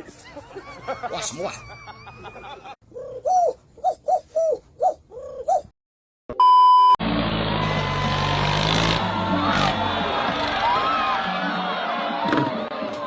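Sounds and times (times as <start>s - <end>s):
coo-like calls: 2.8s - 5.7s
single-pitch beep: 6.3s - 7.0s.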